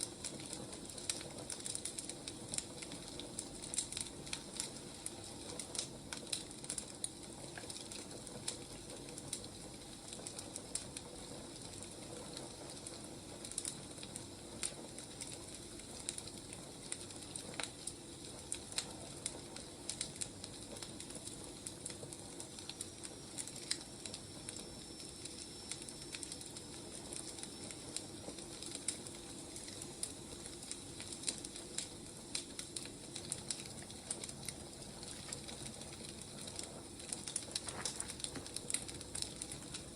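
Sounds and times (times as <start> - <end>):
firewood crackling and popping: 0.0 - 39.9
soft hiss: 14.1 - 39.9.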